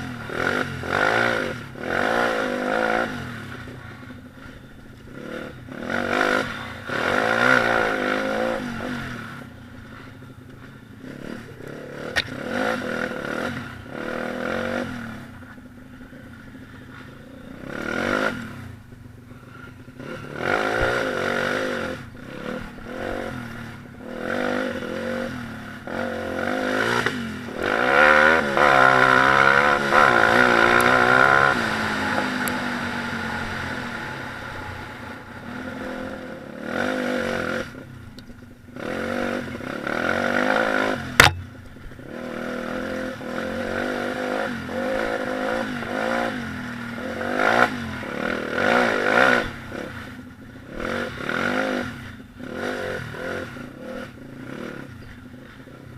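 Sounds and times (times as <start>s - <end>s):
pit bike engine revving: 0.0s - 55.9s
sharp crack: 41.1s - 41.6s.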